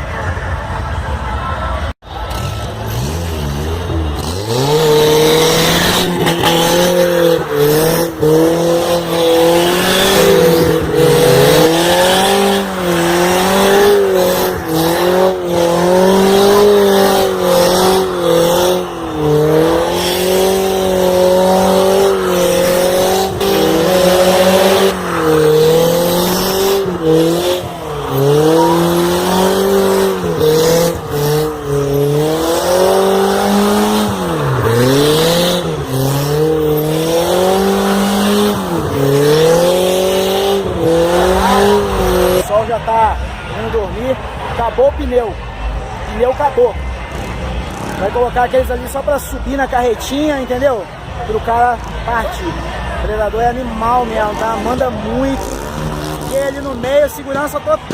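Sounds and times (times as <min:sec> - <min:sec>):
car engine revving high: 0:02.1 - 0:57.9
tyres squealing: 0:02.3 - 0:42.5.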